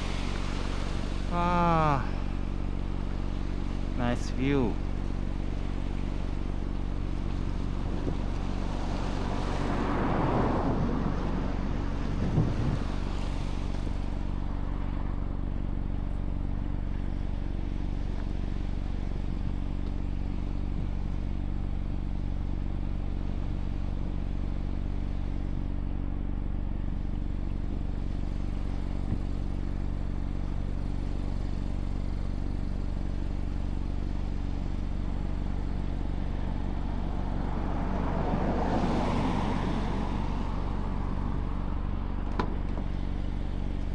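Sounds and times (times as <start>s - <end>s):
car engine idling: 0.0s - 43.9s
vehicle passing by: 7.8s - 15.1s, 36.4s - 42.2s.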